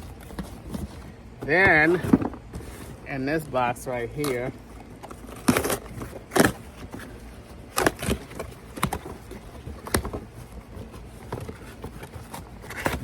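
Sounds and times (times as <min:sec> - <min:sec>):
cardboard box being opened: 0:00.0 - 0:13.0.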